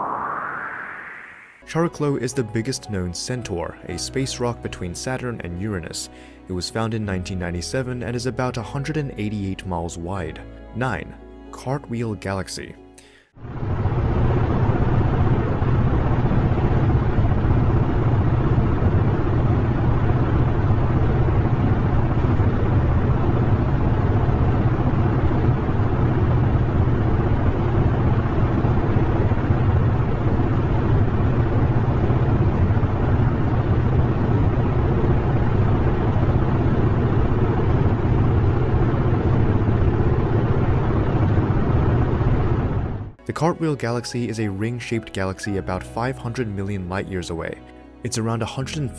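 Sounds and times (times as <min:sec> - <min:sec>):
dense low bass noise: 0:13.4 - 0:43.2.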